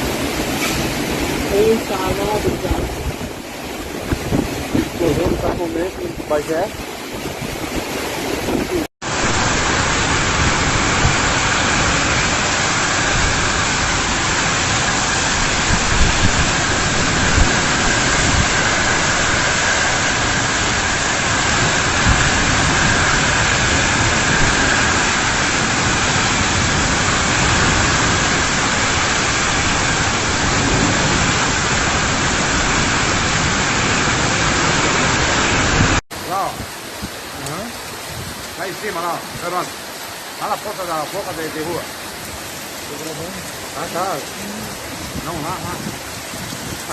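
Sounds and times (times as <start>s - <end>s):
heavy rain pouring: 0.0s - 46.9s.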